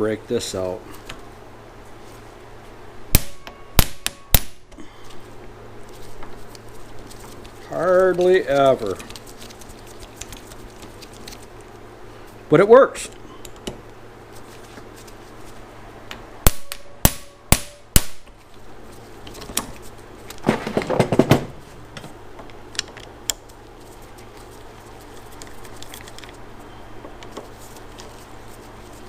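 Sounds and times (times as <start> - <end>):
hammer blows on metal: 3.1 - 4.8, 16.4 - 18.2.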